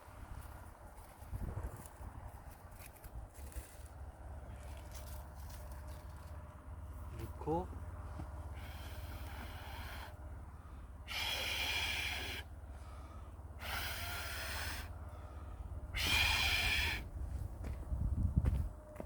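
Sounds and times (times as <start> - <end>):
person blowing on fire: 13.6 - 14.9, 16.0 - 17.0.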